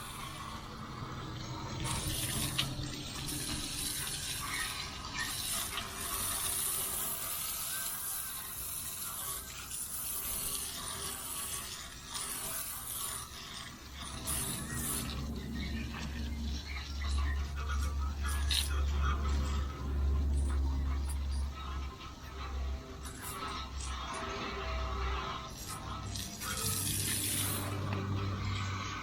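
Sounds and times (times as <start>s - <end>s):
water spraying from a hose: 1.8s - 18.8s, 25.4s - 28.7s.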